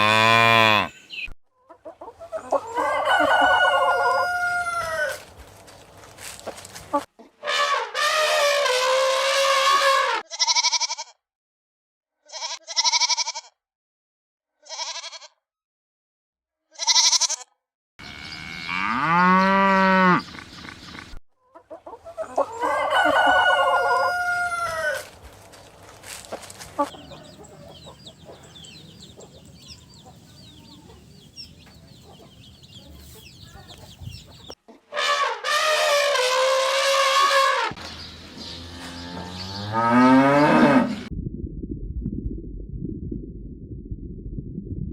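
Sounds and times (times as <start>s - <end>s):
bleat-like cries: 0.0s - 1.0s, 7.6s - 11.2s, 12.2s - 13.6s, 14.6s - 15.4s, 16.7s - 18.8s
chicken clucking: 1.1s - 5.2s, 21.4s - 25.1s, 26.4s - 34.9s
rooster crowing: 2.5s - 5.2s, 22.2s - 25.1s.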